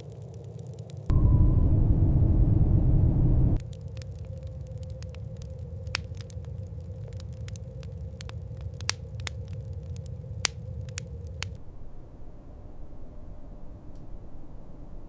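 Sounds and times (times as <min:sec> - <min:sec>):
sharp crackling: 0:00.0 - 0:11.6
faint hum: 0:01.1 - 0:03.6, 0:11.6 - 0:15.0
low steady rumble: 0:01.1 - 0:07.6.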